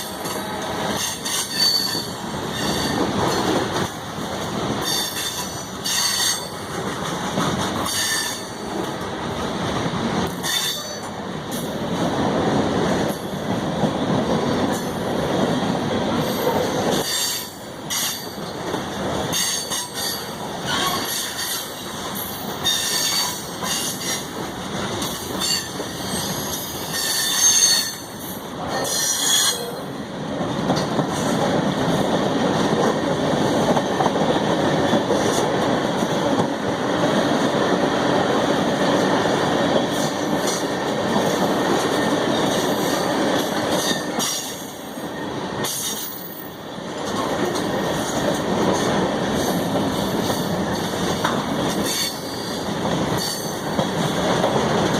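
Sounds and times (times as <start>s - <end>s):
train wheels rumbling on rails: 0.0s - 54.9s
train wheel squeal: 1.0s - 3.5s, 4.8s - 6.6s, 7.8s - 8.6s, 10.4s - 11.1s, 16.2s - 18.6s, 19.3s - 24.3s, 25.0s - 29.9s, 41.9s - 47.3s, 49.4s - 53.8s.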